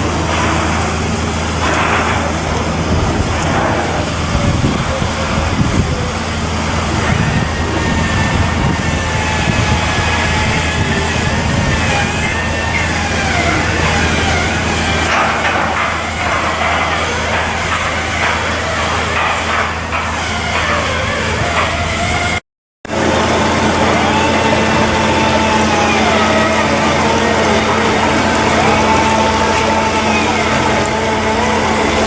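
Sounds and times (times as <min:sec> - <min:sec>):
heavy machinery low hum: 0:00.0 - 0:32.0
higher-pitched whines: 0:22.9 - 0:32.0.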